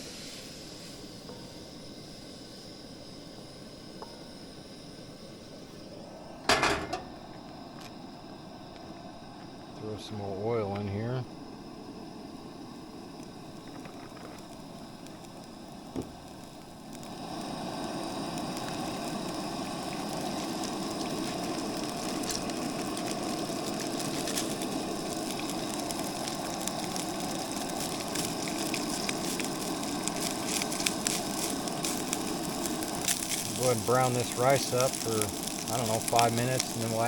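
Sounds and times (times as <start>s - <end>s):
rice sizzling in oil: 0.0s - 37.0s
knock on pan: 6.5s - 7.1s, 16.0s - 16.2s
crackling pops: 12.8s - 37.0s.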